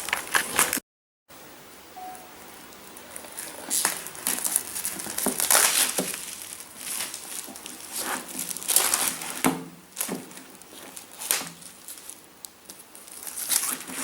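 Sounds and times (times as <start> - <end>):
packaging crinkling and rustling: 0.0 - 0.8, 3.0 - 14.0
sharp crackles: 3.0 - 9.4.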